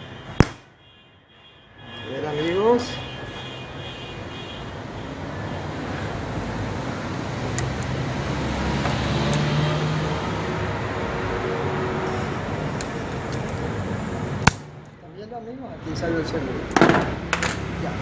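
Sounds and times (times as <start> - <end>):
passing vehicle engine and tyres: 4.7 - 14.9.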